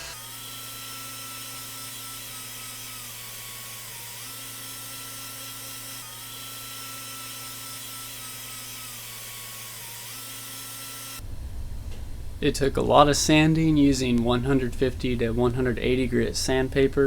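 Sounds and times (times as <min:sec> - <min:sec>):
electric sander running: 0:00.0 - 0:11.3.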